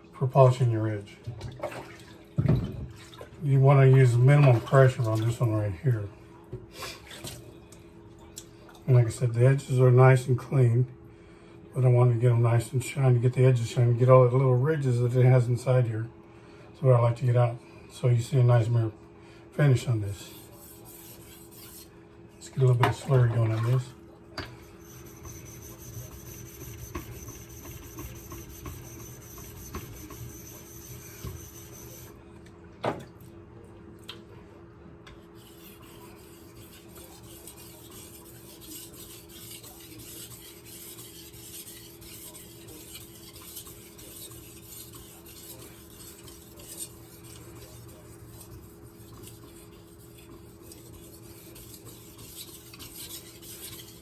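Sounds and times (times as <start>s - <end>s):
knife scraping on wet whetstone: 20.2s - 21.9s, 24.6s - 32.1s, 35.1s - 54.0s.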